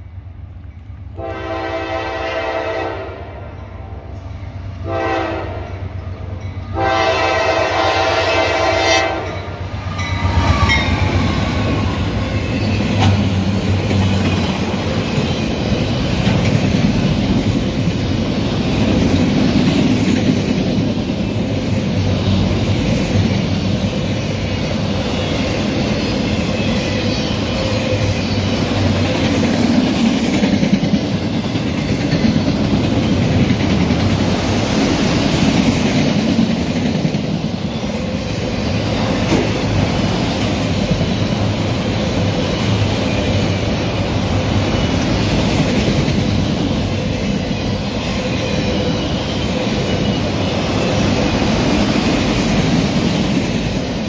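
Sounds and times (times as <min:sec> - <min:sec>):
train wheels rumbling on rails: 0:00.0 - 0:54.0
locomotive horn blasts: 0:01.2 - 0:03.4, 0:04.8 - 0:05.8, 0:06.7 - 0:09.5.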